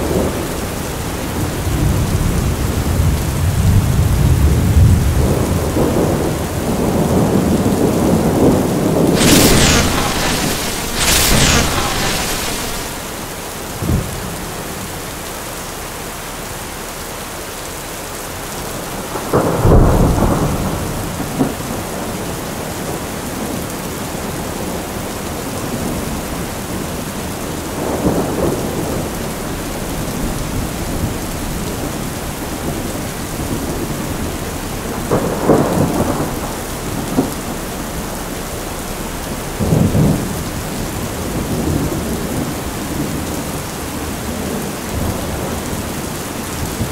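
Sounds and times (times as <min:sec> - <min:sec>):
steady rain: 0:00.0 - 0:46.9
thunder rolling: 0:09.1 - 0:14.1.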